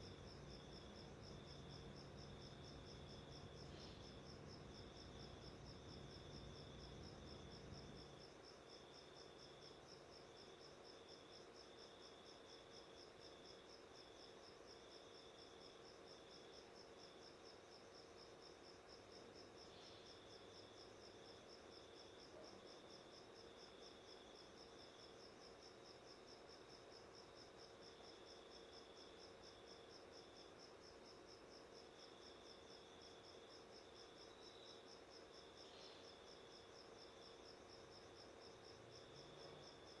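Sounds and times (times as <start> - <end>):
lower-pitched insect trill: 0.0 - 8.3
faint low hum: 0.0 - 10.3
cricket chirping: 0.0 - 40.0.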